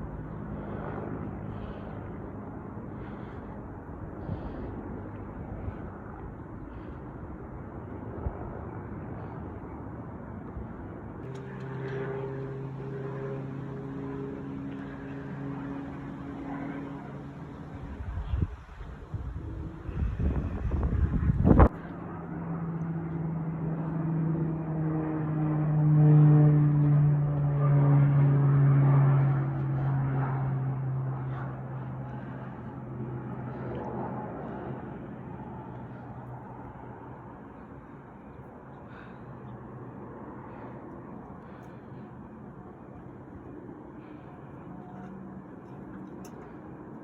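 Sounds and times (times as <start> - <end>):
engine drone with held tones: 0.0 - 47.0
noisy rumble: 0.0 - 47.0.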